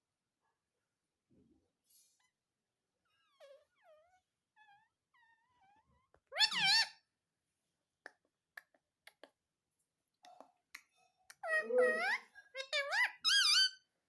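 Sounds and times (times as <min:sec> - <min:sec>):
parakeet calls: 0:06.3 - 0:07.0, 0:11.4 - 0:13.8.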